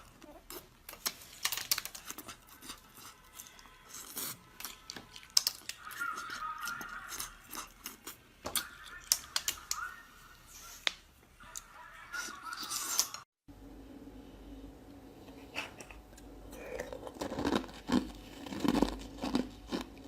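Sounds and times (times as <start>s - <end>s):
wet chewing and mouth noises: 0.0s - 9.4s, 15.2s - 20.0s.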